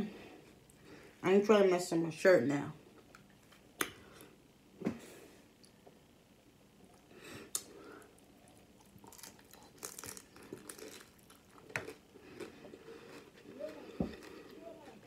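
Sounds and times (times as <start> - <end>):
chewing crunchy taco shell: 6.9 - 15.0.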